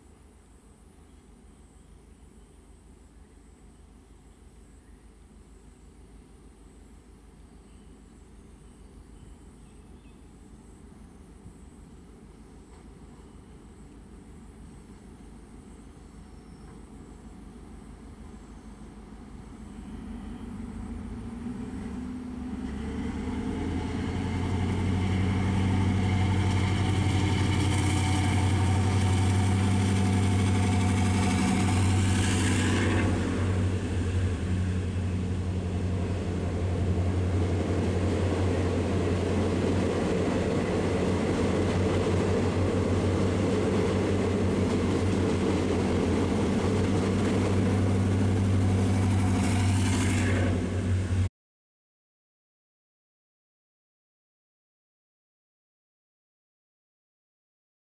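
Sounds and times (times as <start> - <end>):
diesel engine droning: 19.5 - 51.3
train wheels rumbling on rails: 19.5 - 51.3
whining engine note: 19.8 - 51.3.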